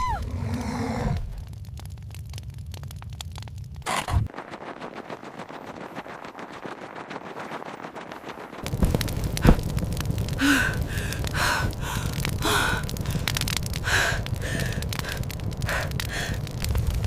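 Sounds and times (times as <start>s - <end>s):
low steady rumble: 1.2s - 17.0s
person panting for breath: 10.4s - 16.5s.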